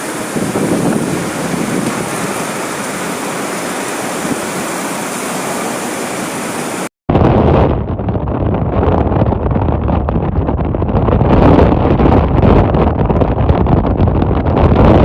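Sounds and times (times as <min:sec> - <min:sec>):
loud rushing water: 0:00.0 - 0:06.9
low rumbling noise: 0:00.0 - 0:15.0
wind on microphone: 0:00.0 - 0:15.0.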